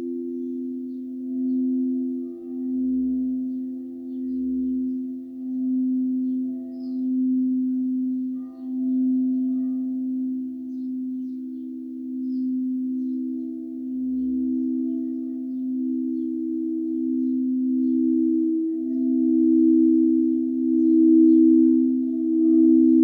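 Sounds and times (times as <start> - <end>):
singing bowls ringing: 0.0 - 23.0.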